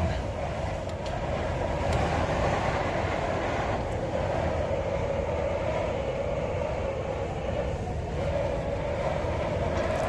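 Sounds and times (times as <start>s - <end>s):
strong wind rumbling on microphone: 0.0s - 10.0s.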